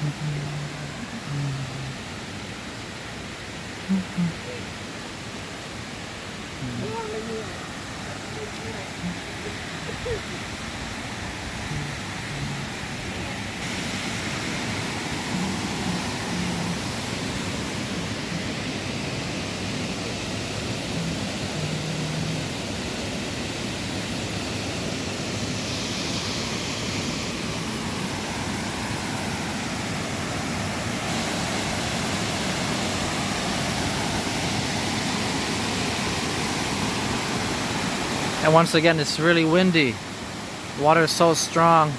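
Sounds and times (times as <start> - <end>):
waterfall rushing: 0.0 - 41.9
wind gusting on microphone: 6.6 - 38.5.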